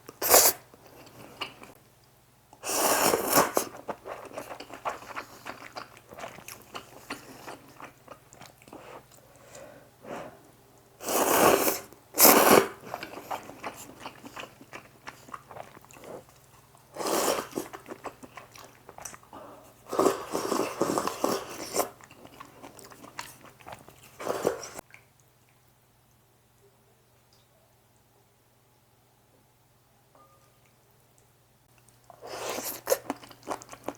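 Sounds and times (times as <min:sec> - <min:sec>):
wet chewing of noodles: 0:00.1 - 0:01.8, 0:02.6 - 0:25.6, 0:31.7 - 0:33.9.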